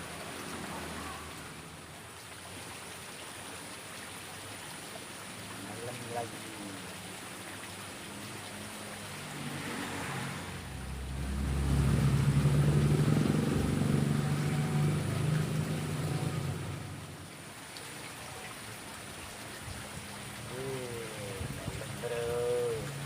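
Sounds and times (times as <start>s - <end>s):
flowing water: 0.0s - 23.0s
vehicle engine passing: 8.0s - 17.4s.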